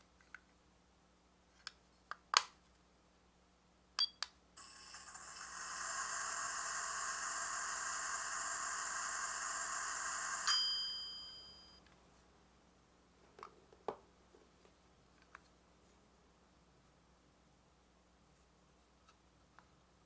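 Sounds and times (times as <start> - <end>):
toy microwave electronic hum: 4.0 - 11.8
microwave ding: 10.4 - 11.8.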